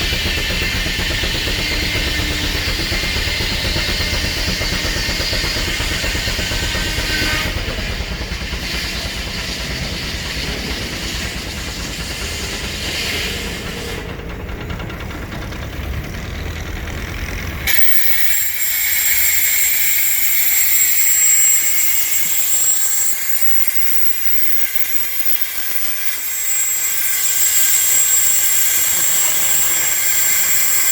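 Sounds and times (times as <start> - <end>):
steam engine chuffing: 0.0 - 30.9
steam hissing: 0.0 - 30.9
thin high whine: 11.0 - 30.9.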